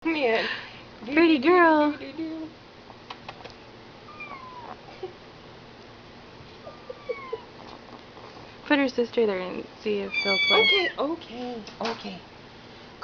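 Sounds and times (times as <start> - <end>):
kitten mewing: 4.1 - 5.0, 6.6 - 7.8, 10.1 - 11.0.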